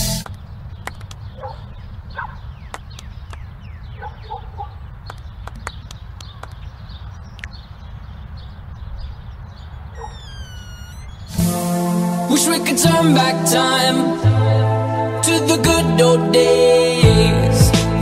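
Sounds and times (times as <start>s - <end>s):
sharp clicks: 0.2s - 1.3s, 5.0s - 6.7s
bird-like calls: 0.7s - 11.5s.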